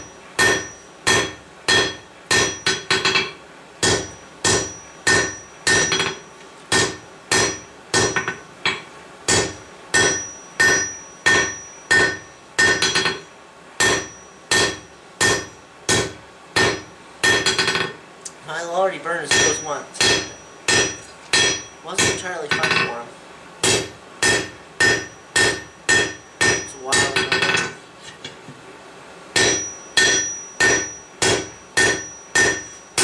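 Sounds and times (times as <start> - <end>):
hammer striking steel on anvil: 0.0 - 18.0, 19.3 - 22.9, 23.6 - 27.8, 29.4 - 33.0.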